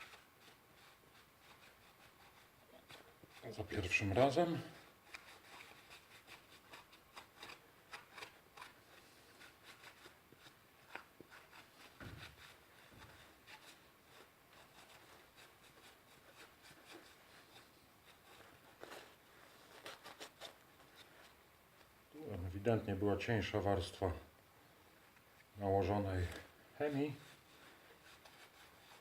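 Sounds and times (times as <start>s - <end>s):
scraper scraping paint off metal: 5.0s - 21.2s.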